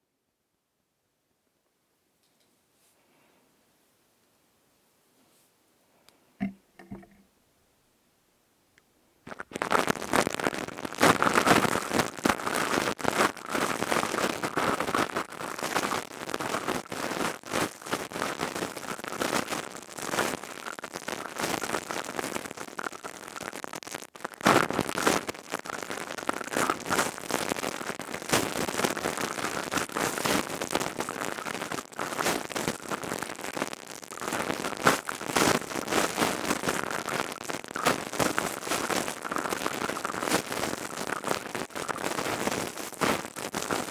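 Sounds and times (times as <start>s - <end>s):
crystal tube crackling clicks: 6.4s - 7.2s, 34.1s - 43.9s.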